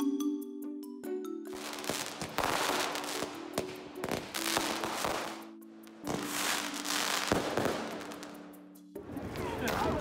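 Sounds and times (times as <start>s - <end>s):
fireworks popping and crackling: 1.6s - 5.4s, 6.0s - 8.4s.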